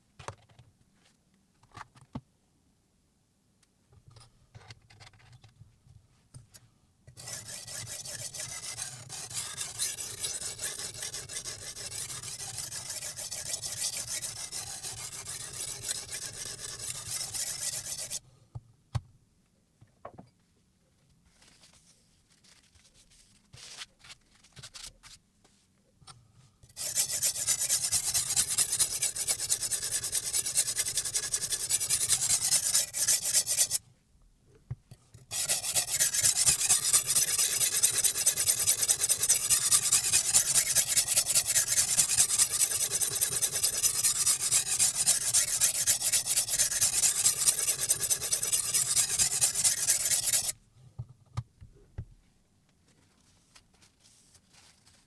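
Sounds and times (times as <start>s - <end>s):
stone grinding knife edge: 7.2s - 18.2s, 26.8s - 33.8s, 35.3s - 50.5s.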